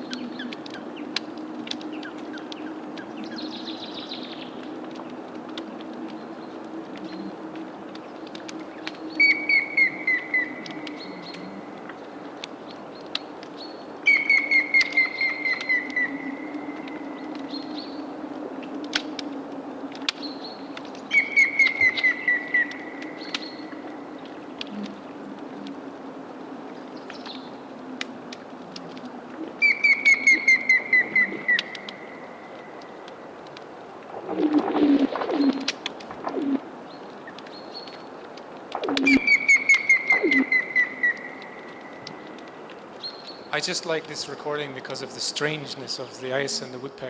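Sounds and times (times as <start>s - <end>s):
woodpecker whistled notes: 14.1s - 17.0s, 21.1s - 23.6s, 29.6s - 32.3s, 38.8s - 42.5s
melting ice humming: 29.6s - 47.0s.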